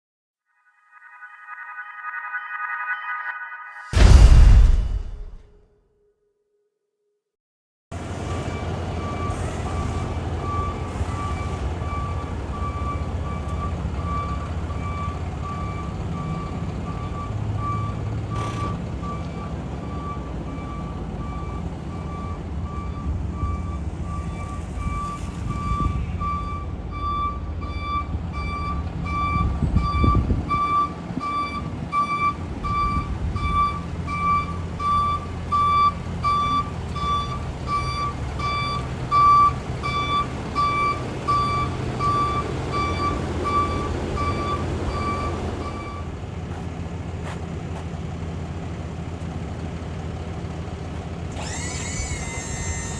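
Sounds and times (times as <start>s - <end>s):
diesel truck engine rumbling: 7.9s - 52.9s
reverse alarm beeping: 8.4s - 46.2s.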